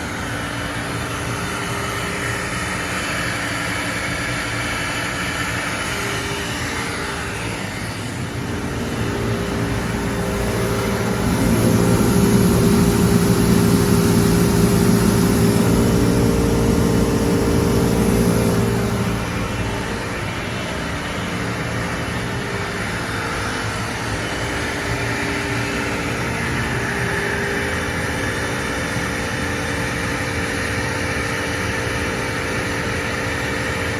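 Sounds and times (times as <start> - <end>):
cnc machine whine: 0.0 - 33.9.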